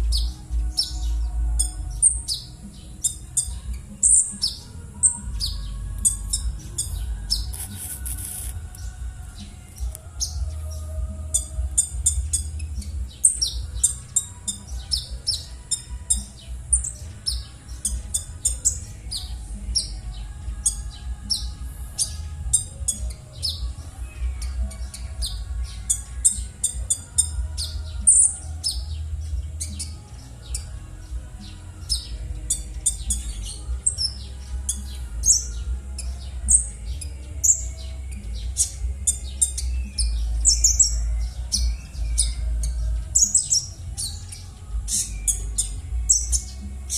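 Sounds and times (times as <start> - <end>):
bird harsh scratchy chirps: 0.0 - 30.8
steady low hum: 0.0 - 46.9.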